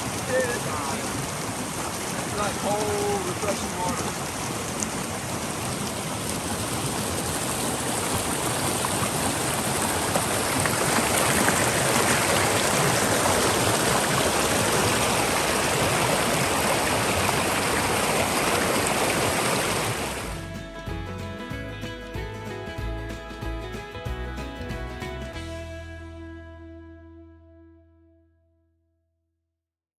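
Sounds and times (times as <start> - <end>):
mountain stream rushing: 0.0 - 20.5.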